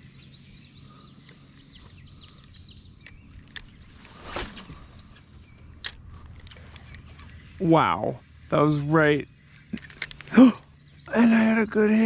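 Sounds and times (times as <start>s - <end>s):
low steady background: 0.0s - 12.0s
songbirds chirping: 0.0s - 12.0s
brief whoosh: 3.9s - 5.8s.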